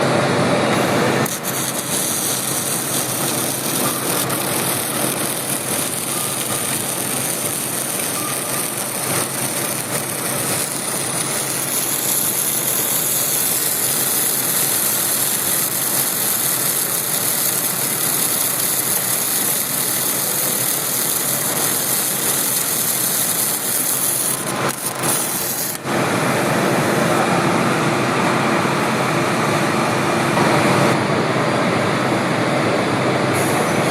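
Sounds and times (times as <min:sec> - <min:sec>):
factory machinery din: 0:00.0 - 0:33.9.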